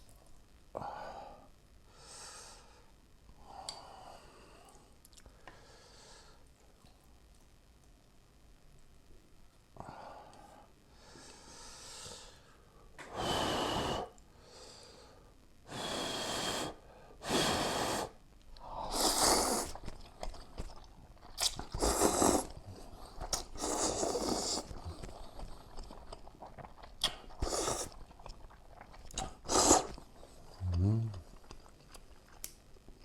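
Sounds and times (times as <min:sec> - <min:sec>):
quiet chewing: 0:04.7 - 0:05.6, 0:18.4 - 0:33.0
person slurping noodles: 0:18.8 - 0:31.4.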